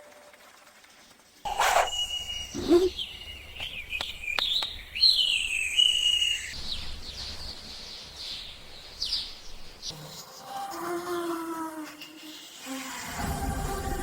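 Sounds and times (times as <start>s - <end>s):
birds chirping and whistling: 1.5s - 10.5s.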